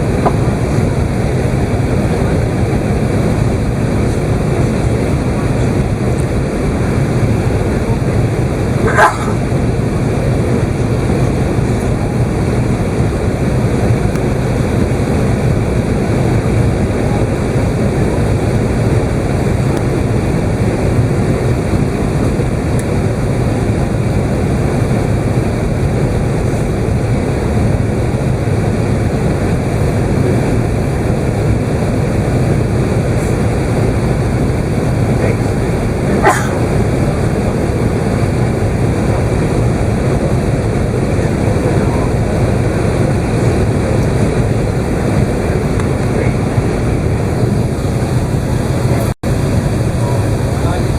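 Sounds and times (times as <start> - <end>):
aircraft cabin engine rush: 0.0 - 50.9.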